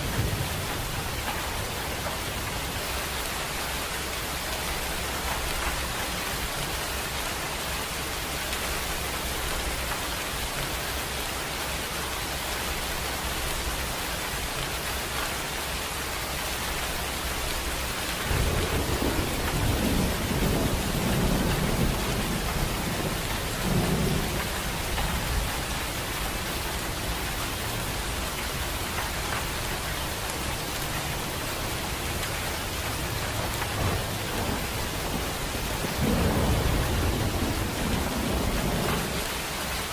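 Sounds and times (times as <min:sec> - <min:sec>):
steady rain: 0:00.0 - 0:39.9
rolling thunder rumble: 0:17.6 - 0:28.6, 0:31.0 - 0:39.9.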